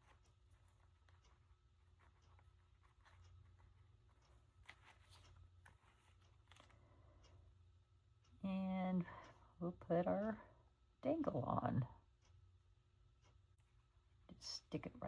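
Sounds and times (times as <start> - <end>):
paper rustling and ticks: 0.0 - 7.4
low steady hum: 0.0 - 15.0.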